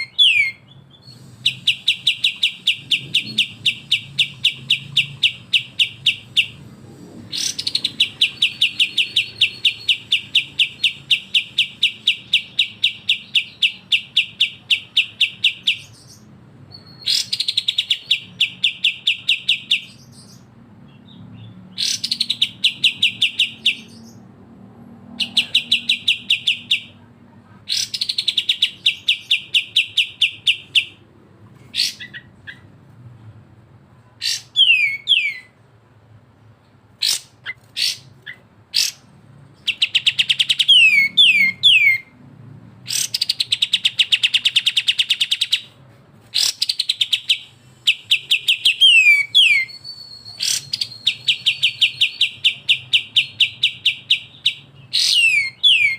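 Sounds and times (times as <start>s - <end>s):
songbirds trilling: 0.0s - 24.4s, 27.6s - 32.7s, 37.0s - 42.2s, 46.3s - 55.9s.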